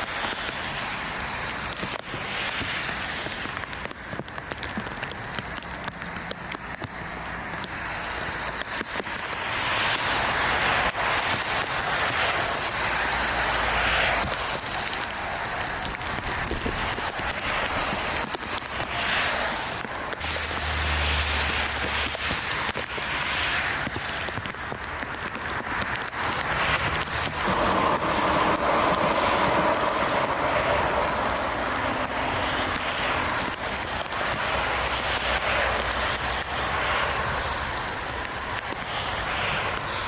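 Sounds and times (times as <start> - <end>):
gusty wind on microphone: 7.5 - 20.4, 21.4 - 40.0
jet engines whining: 27.4 - 32.1.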